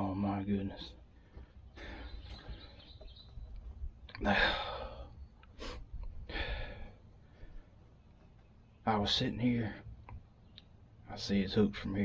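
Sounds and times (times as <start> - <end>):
man breathing heavily: 1.0 - 3.0, 4.2 - 8.2
sharp sniff: 5.6 - 5.8.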